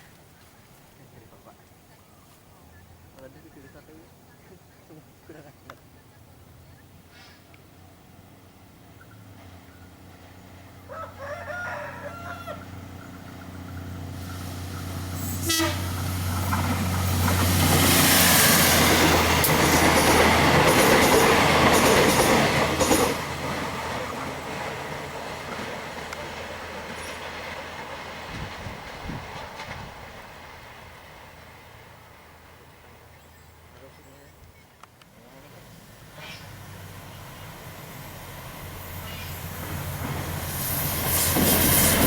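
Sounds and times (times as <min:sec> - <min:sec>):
diesel train engine hum: 0:02.7 - 0:42.0
train wheels clacking on rails: 0:16.0 - 0:31.5, 0:36.5 - 0:42.0.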